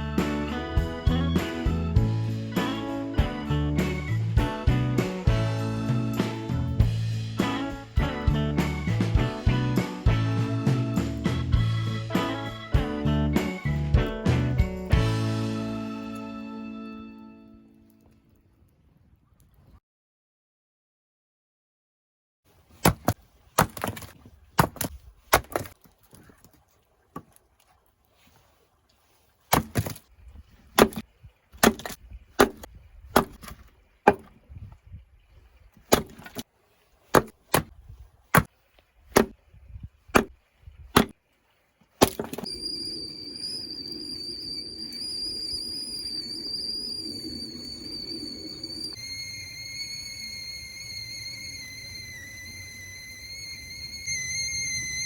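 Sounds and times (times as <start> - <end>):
hatchet chopping wood: 22.8 - 25.8, 29.5 - 30.0, 30.8 - 31.0, 31.6 - 34.3, 35.9 - 36.4, 37.1 - 37.7, 39.1 - 39.4, 40.2 - 40.4, 41.0 - 41.2, 42.0 - 42.4
insects chirring: 42.4 - 55.0.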